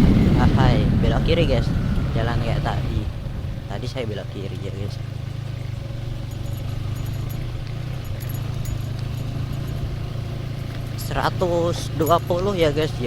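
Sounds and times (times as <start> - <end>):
motorcycle engine drone: 0.0 - 13.0
faint rattling clicks: 6.1 - 11.3.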